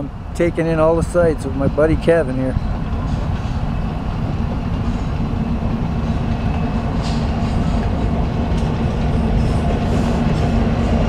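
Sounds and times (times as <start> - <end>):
diesel locomotive engines droning: 0.0 - 11.0
train rumble: 0.0 - 11.0.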